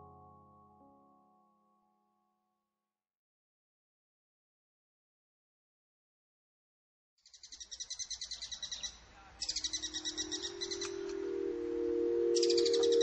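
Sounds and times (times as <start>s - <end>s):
bird trilling chirps: 7.3s - 13.0s
held ambient music notes: 9.6s - 13.0s.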